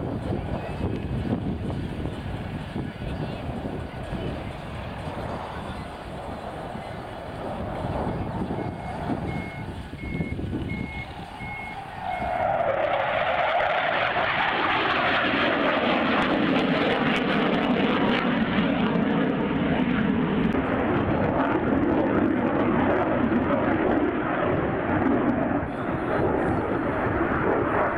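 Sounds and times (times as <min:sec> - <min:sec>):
aircraft engine noise: 0:00.0 - 0:27.9.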